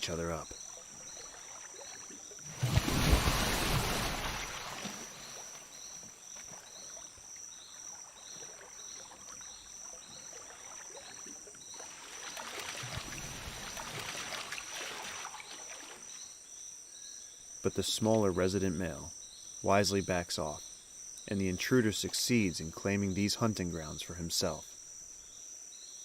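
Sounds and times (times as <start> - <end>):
water churning: 0.0 - 16.2
high insect drone: 0.0 - 26.0
pulsing insect call: 0.0 - 26.0
loud splash in water: 2.5 - 5.4, 11.9 - 15.9.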